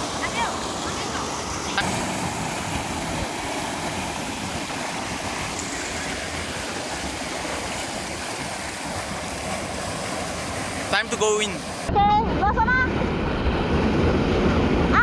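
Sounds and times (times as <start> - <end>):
flowing water rushing: 0.0 - 11.9.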